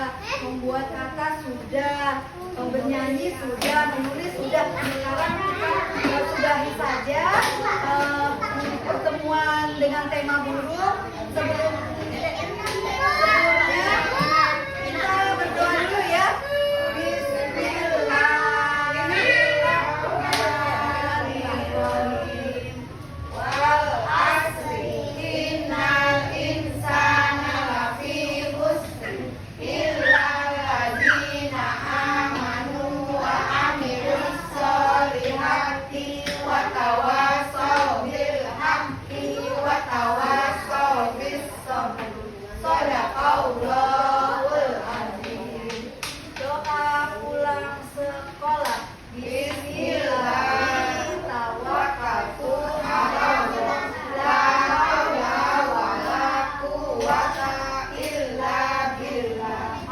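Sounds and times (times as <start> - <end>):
children singing in unison: 2.6 - 10.6, 11.2 - 59.9
adult voice singing: 13.1 - 59.9.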